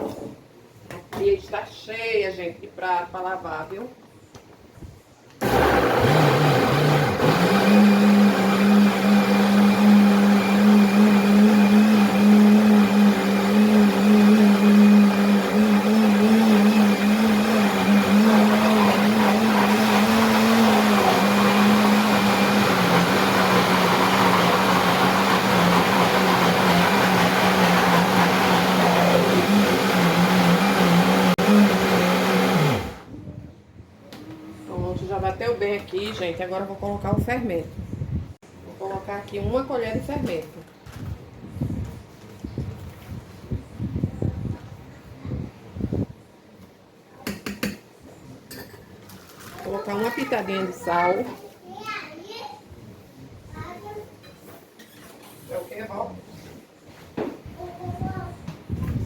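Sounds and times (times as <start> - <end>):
kitchen blender running: 5.4 - 33.1.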